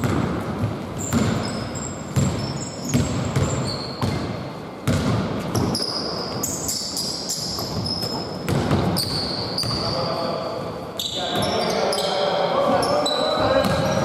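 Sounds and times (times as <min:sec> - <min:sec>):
basketball bouncing: 0:00.0 - 0:06.6, 0:07.4 - 0:09.9, 0:13.4 - 0:14.0
sneaker squeaks: 0:00.0 - 0:14.0.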